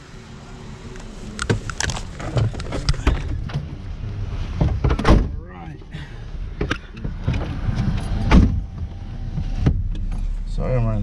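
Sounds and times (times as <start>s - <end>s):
low rumble: 0.0s - 11.0s
gear knocking and rattling: 1.4s - 5.9s.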